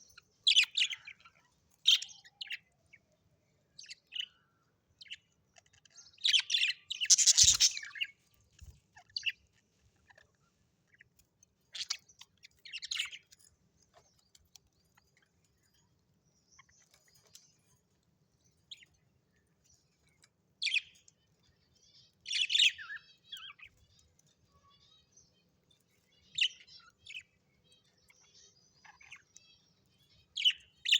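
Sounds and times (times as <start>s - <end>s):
parrots chirping: 5.0s - 8.1s.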